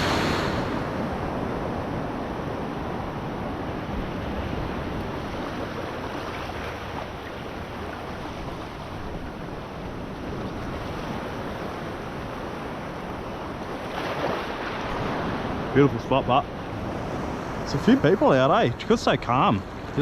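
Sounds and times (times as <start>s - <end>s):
wind noise on microphone: 0.0s - 7.1s
waves washing over rock: 0.0s - 20.0s.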